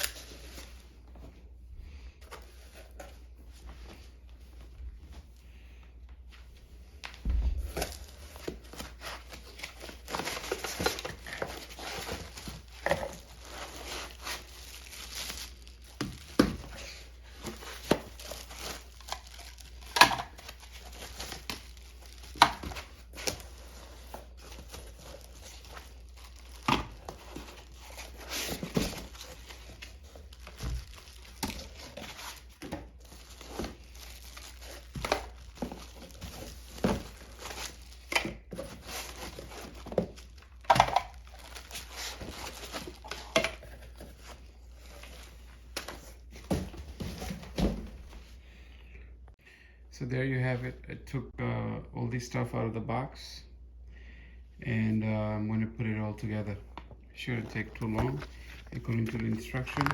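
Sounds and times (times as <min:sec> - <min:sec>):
packaging crinkling and rustling: 0:07.0 - 0:47.8, 0:57.3 - 0:59.9.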